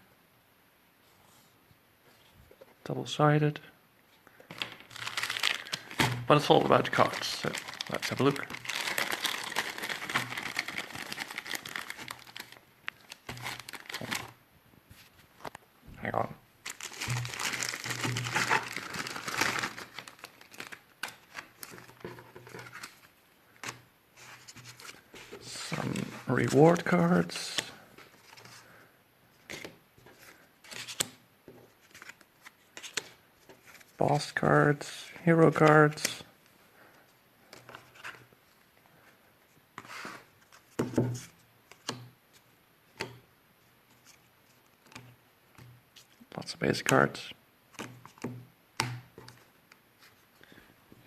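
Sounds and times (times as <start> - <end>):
cards knocking and rustling: 4.4 - 14.3, 16.7 - 28.6, 29.4 - 34.0, 39.8 - 42.1, 47.7 - 49.5
packaging crinkling and tearing: 4.5 - 14.4, 16.6 - 23.8.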